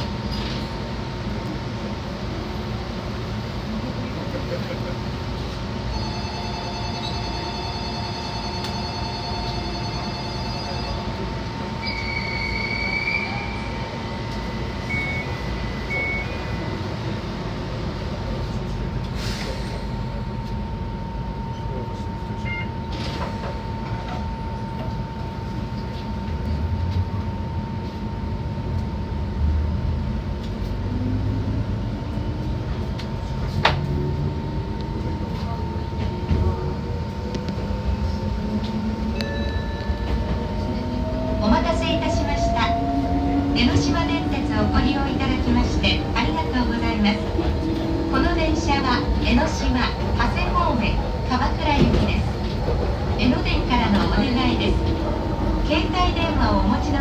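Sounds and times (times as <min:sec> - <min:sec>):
electric train rumble and hum: 0:00.0 - 0:57.0
brief beeps: 0:14.8 - 0:16.7, 0:22.4 - 0:22.8.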